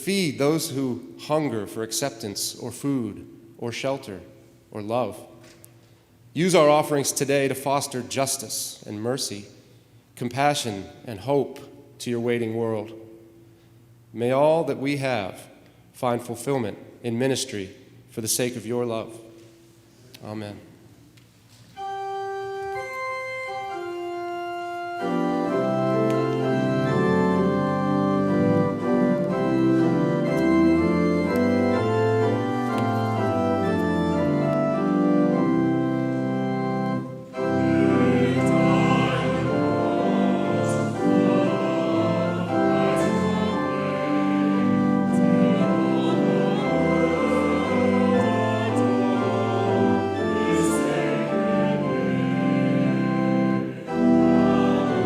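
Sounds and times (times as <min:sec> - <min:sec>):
church organ playing: 0:00.0 - 0:05.3, 0:06.3 - 0:09.5, 0:21.7 - 0:55.0.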